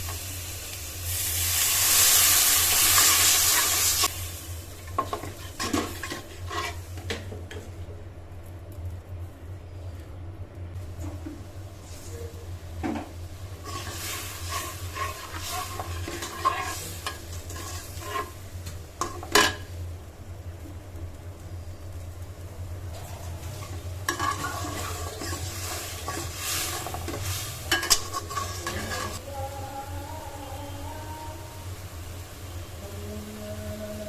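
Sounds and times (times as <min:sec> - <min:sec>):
onions sizzling in oil: 0:00.0 - 0:07.7, 0:10.8 - 0:29.3, 0:31.5 - 0:34.0
spoon scraping and stirring in pan: 0:04.9 - 0:07.7, 0:13.6 - 0:18.4, 0:23.4 - 0:29.2.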